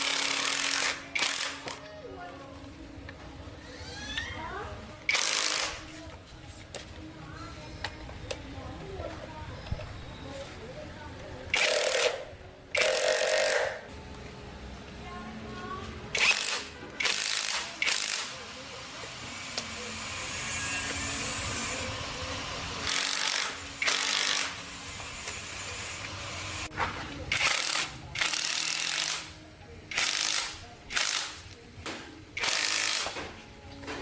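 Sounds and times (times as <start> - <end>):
ratcheting power tool bursts: 0.0 - 1.8, 5.1 - 5.8, 11.5 - 13.8, 16.1 - 18.3, 22.8 - 24.6, 27.3 - 31.5, 32.4 - 33.2.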